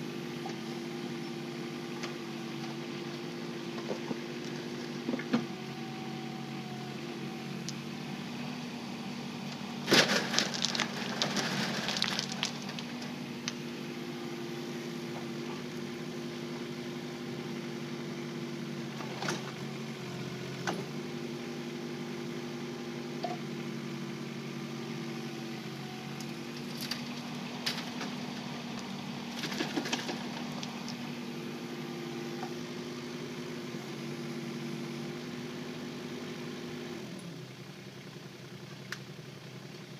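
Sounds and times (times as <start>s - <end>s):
excavator diesel engine running: 0.0s - 39.9s
rattling clatter: 9.9s - 13.1s.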